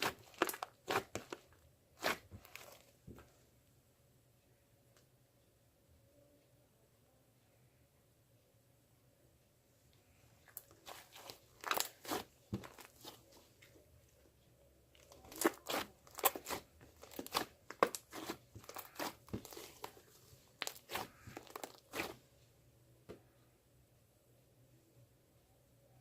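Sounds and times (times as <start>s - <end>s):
crunching and crinkling crackles: 0.0s - 3.0s, 10.4s - 14.3s, 14.9s - 22.4s.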